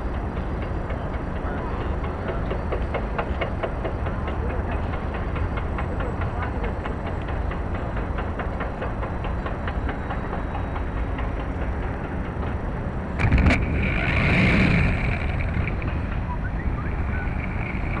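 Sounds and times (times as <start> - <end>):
wind buffeting microphone: 0.0 - 1.4.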